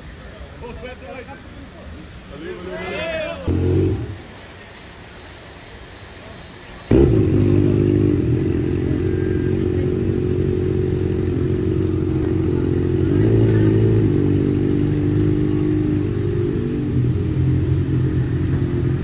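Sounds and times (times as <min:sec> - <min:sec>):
motorcycle engine idling: 0:06.9 - 0:19.0.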